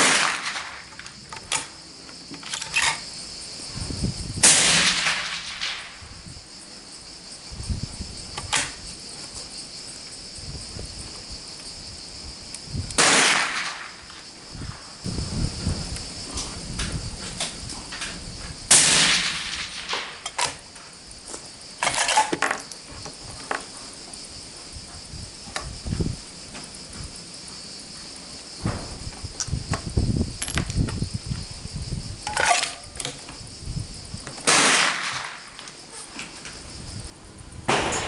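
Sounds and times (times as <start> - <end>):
suppressed rifle shots: 0.0 - 0.8, 4.4 - 6.0, 13.0 - 14.0, 18.7 - 20.5, 34.4 - 35.4, 37.7 - 38.0
insect buzz: 0.0 - 37.8
wind rumbling on microphone: 2.7 - 13.0, 14.0 - 21.7, 22.8 - 34.4, 36.4 - 38.0.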